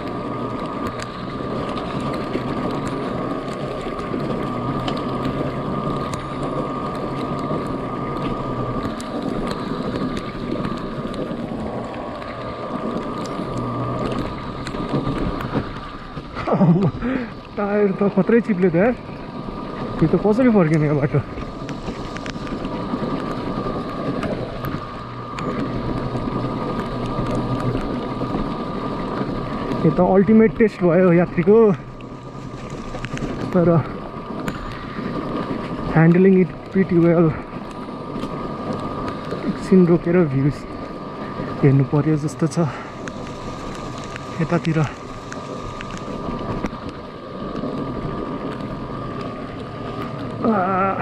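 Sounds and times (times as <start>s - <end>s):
wind noise on microphone: 0.0s - 17.6s
electric motorcycle whine: 0.0s - 51.0s
stones ticking under tyres: 0.0s - 51.0s.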